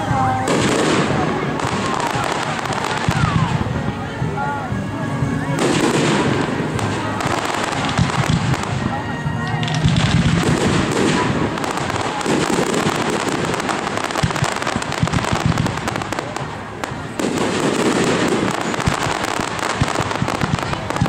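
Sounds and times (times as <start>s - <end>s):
fireworks popping and crackling: 0.0s - 21.0s
loud firework burst: 5.6s - 21.0s.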